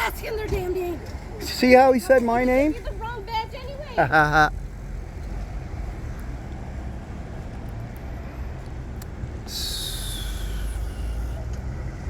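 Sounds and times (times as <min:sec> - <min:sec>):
vehicle rumble: 0:00.0 - 0:12.0
loud hiss: 0:09.5 - 0:11.3.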